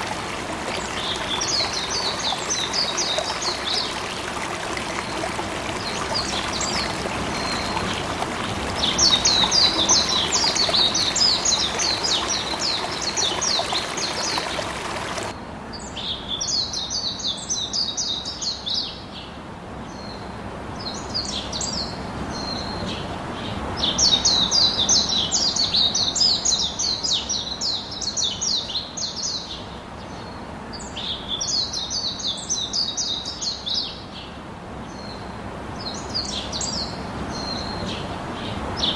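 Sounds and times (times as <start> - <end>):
flowing water rushing: 0.0 - 15.4.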